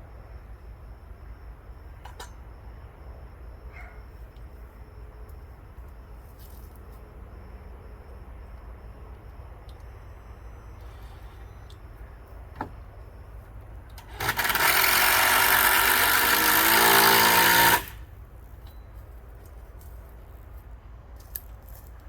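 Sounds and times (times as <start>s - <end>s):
power tool motor running: 14.0s - 18.1s.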